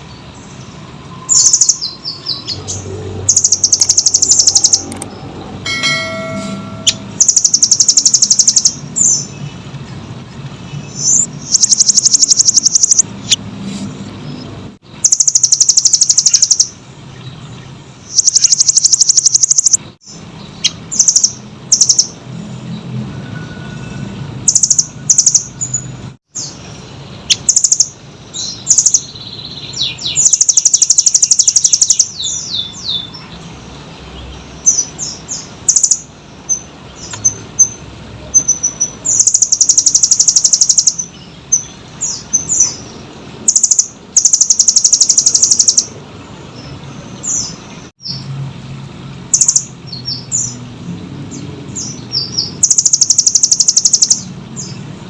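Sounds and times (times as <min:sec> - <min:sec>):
bird singing rapid trills: 0:00.0 - 0:13.4, 0:14.2 - 0:48.4, 0:49.3 - 0:55.0
bird chirps and whistles: 0:01.2 - 0:04.9, 0:06.2 - 0:09.3, 0:10.9 - 0:13.0, 0:15.0 - 0:16.7, 0:18.1 - 0:19.8, 0:27.3 - 0:33.2, 0:38.4 - 0:42.8, 0:43.5 - 0:45.9, 0:52.2 - 0:54.3.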